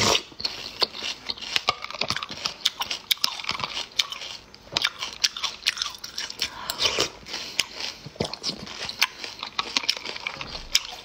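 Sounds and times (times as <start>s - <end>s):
crunchy chewing of shellfish: 0.0s - 11.0s.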